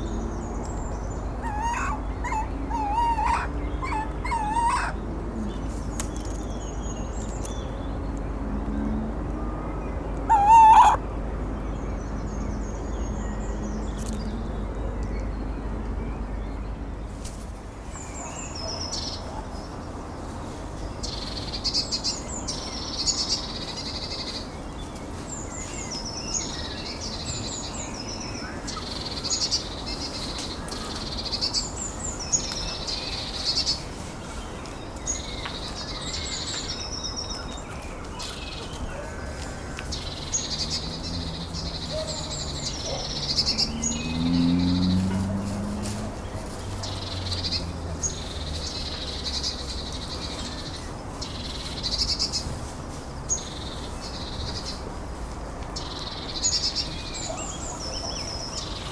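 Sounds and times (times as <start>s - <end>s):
faint high bird calls: 0.0s - 6.5s, 9.5s - 11.0s
small songbird singing: 0.0s - 8.2s, 9.8s - 11.0s, 39.8s - 45.2s.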